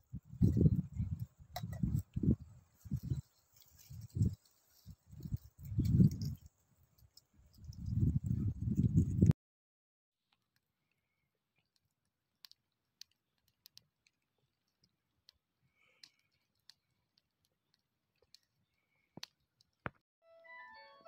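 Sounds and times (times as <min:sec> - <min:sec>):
faint sharp clicks: 0:14.8 - 0:16.8.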